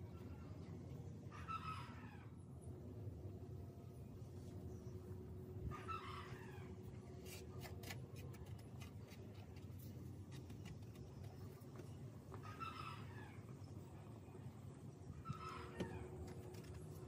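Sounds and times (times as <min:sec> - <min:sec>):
low steady hum: 0:00.0 - 0:17.0
fingertips ticking and scratching plastic: 0:07.2 - 0:12.0.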